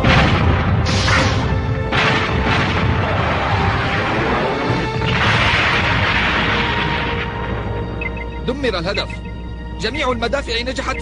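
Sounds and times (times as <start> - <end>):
cannons booming: 0.0 - 8.0
background music: 0.0 - 11.0.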